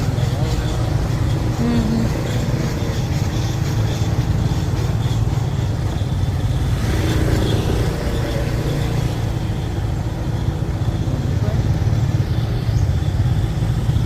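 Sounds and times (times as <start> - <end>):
motorbike engine rumbling: 0.0 - 14.0.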